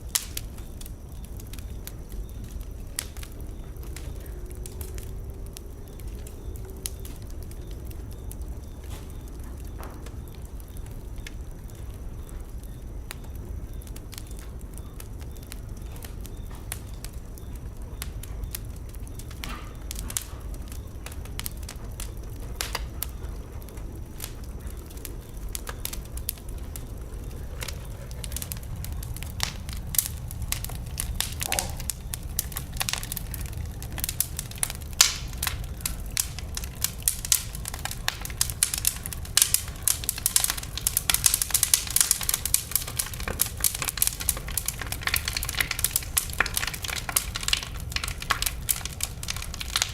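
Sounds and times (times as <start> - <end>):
wood fire crackling and popping: 0.0 - 49.9
low rumble: 18.3 - 42.1.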